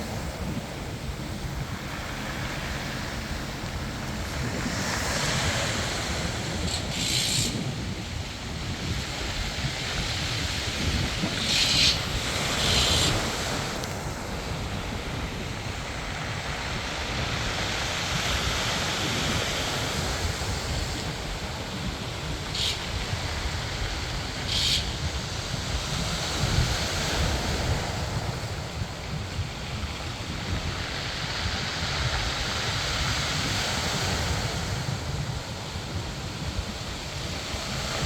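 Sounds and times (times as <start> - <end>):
hissing wave splashes: 0.0 - 8.6
sea waves washing in: 0.0 - 38.0
wind buffeting microphone: 0.0 - 38.0.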